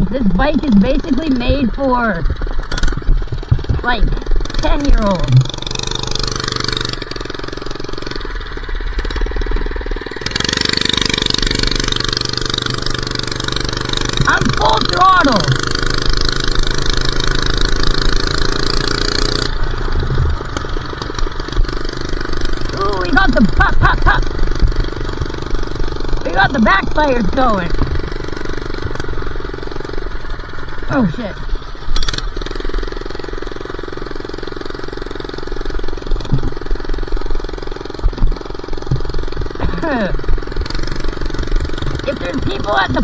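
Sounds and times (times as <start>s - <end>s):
engine popping and backfiring: 0.0s - 43.0s
minibike engine revving: 0.0s - 43.0s.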